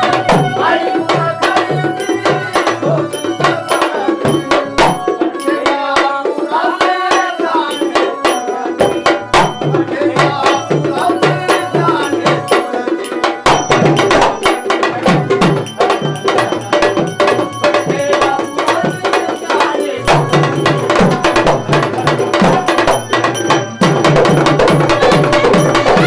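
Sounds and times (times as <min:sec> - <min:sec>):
fast hand drum strokes: 0:00.0 - 0:26.0
sustained melodic accompaniment: 0:07.2 - 0:26.0.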